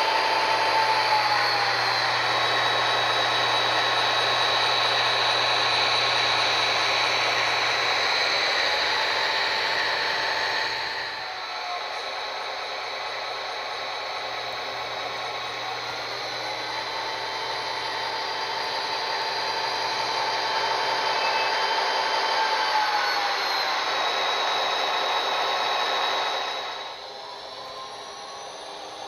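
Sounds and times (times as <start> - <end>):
model train motor whine: 0.0 - 29.0.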